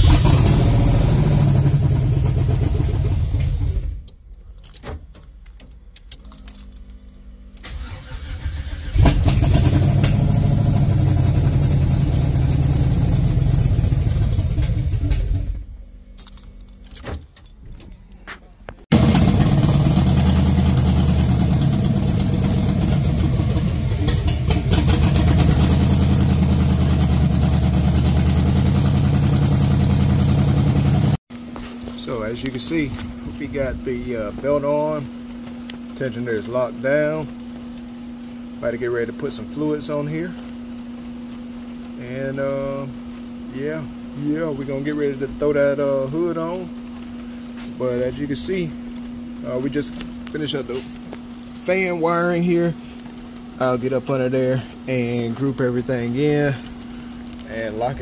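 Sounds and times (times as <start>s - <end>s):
car engine starting and running: 0.0s - 17.9s, 18.8s - 31.2s.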